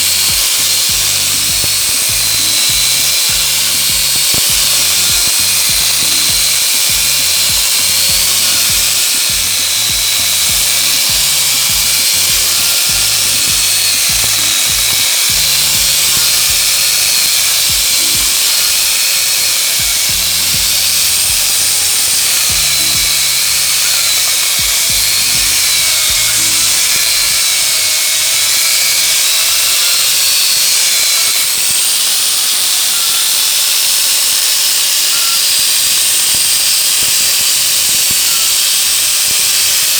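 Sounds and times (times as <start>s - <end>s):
background music with bass line: 0.0s - 27.7s
chainsaw attachment cutting log: 0.0s - 39.9s.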